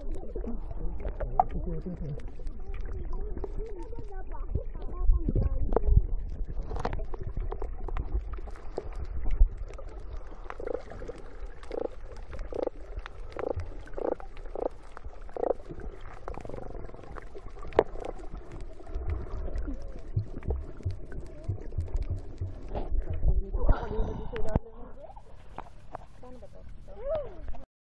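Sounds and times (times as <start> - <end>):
bubbling gurgles: 0.0 - 26.0
low underwater rumbling: 0.0 - 27.6
underwater clicks: 5.3 - 23.6.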